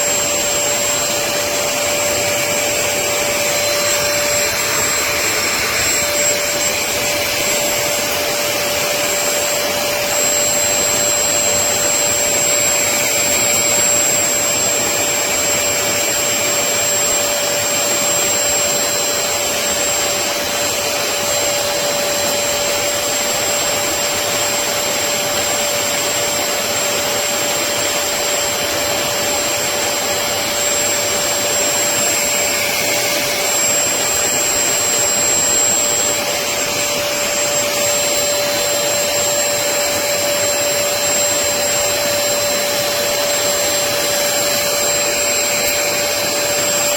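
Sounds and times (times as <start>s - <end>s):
wet vacuum motor whining: 0.0s - 46.9s.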